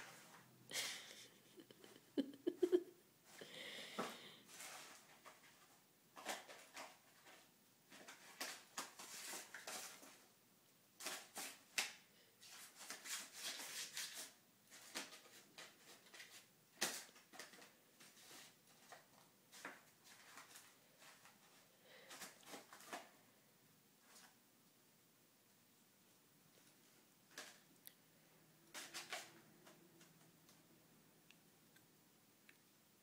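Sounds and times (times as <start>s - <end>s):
kitten scratching cardboard: 11.0s - 21.5s.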